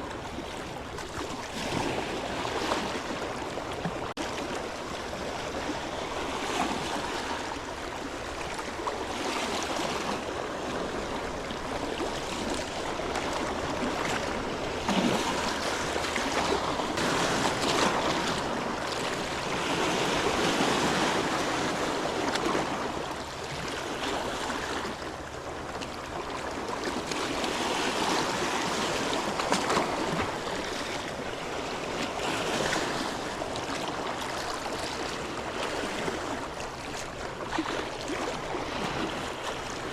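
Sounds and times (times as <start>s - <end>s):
small waves washing ashore: 0.0s - 39.9s.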